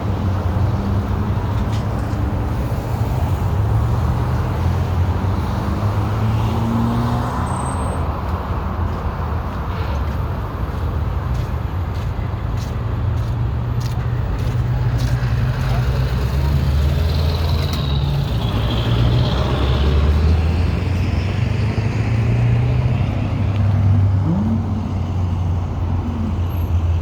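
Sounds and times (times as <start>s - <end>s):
locomotives idling low hum: 23.1s - 27.0s.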